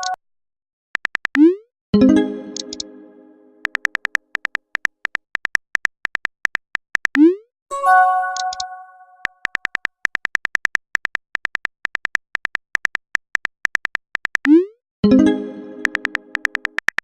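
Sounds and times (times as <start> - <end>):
phone keyboard clicks: 2.5 - 2.9, 3.6 - 7.2, 8.3 - 14.5, 15.8 - 17.0
notification chime: 7.7 - 9.2.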